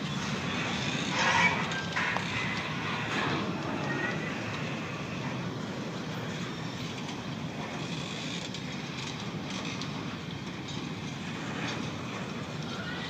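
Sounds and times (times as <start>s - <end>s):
freight train rolling past: 0.0s - 7.9s.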